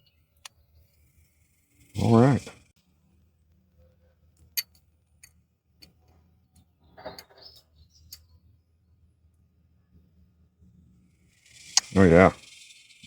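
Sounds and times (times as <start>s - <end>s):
sharp metallic clicks: 11.5s - 13.0s.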